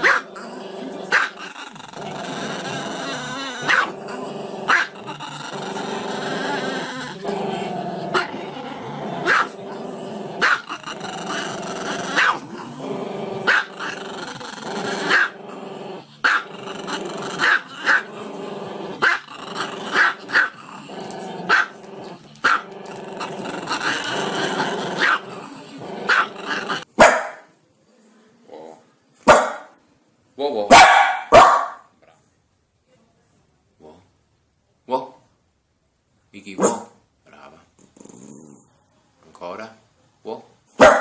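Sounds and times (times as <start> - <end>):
dog yapping: 3.6 - 3.9, 30.7 - 31.8, 40.8 - 41.0.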